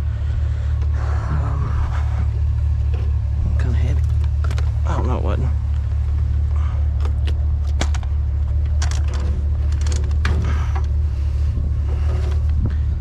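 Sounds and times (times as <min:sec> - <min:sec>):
vehicle engine idling: 0:00.0 - 0:13.0
clanks and knocks of equipment: 0:07.0 - 0:11.0.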